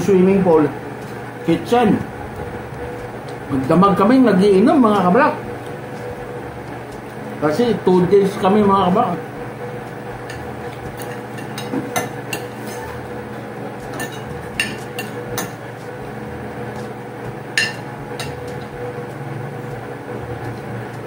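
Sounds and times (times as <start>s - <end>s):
background hum: 0.0s - 21.0s
cutlery clinking on plates: 10.3s - 12.9s.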